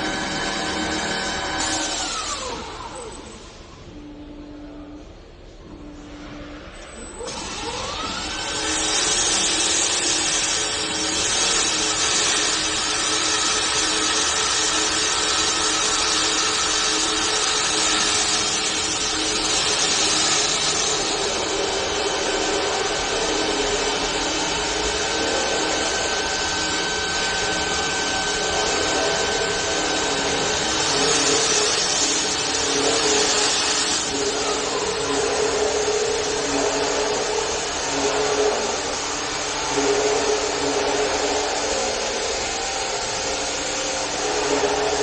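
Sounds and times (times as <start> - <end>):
wood lathe machine noise: 0.0 - 3.4, 7.3 - 45.0.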